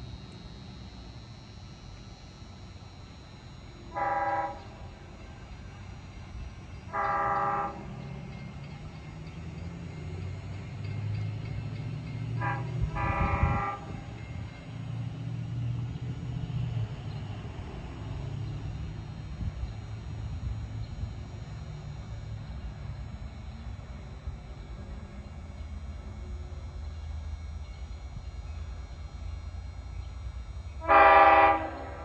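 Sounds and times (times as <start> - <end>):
low train engine rumble: 0.0 - 32.0
train horn blasts: 3.5 - 8.8, 12.2 - 14.6, 30.6 - 32.0.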